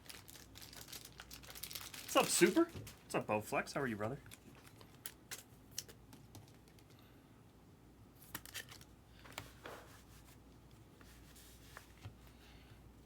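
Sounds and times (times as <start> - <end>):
soft rustles of hands: 9.2 - 12.5.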